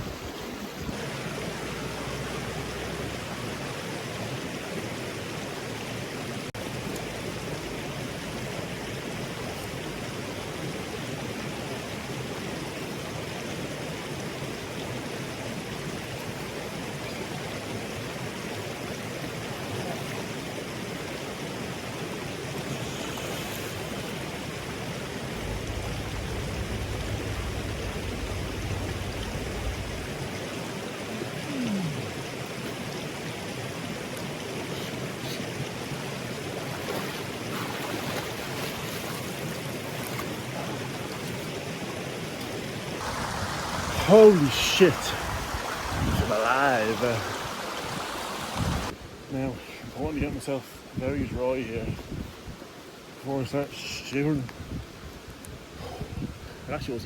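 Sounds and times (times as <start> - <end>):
river water rushing: 0.0 - 49.1
low rumble: 24.5 - 30.9.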